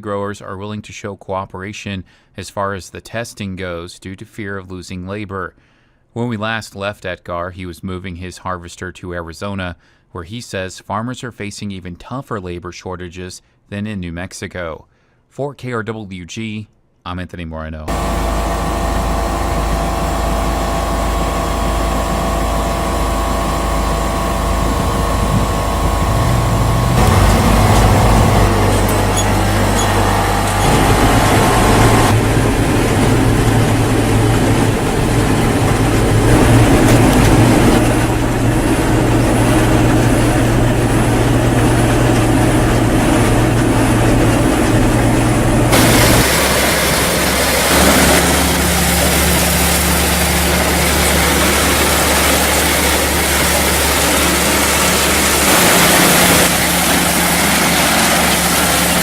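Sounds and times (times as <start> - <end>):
harvester engine running: 17.9 - 59.0.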